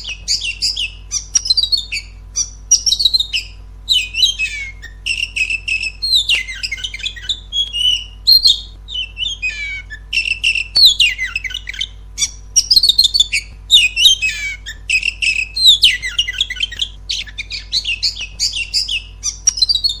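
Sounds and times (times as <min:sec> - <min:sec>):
bird song whistles and trills: 0:00.0 - 0:20.0
steady low hum: 0:00.0 - 0:20.0.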